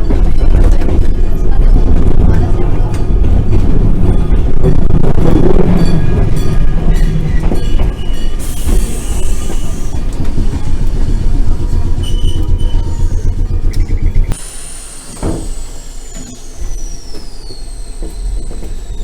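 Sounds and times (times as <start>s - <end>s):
tram rumbling along track: 0.0s - 19.0s
high-pitched wheel squeals: 5.4s - 19.0s.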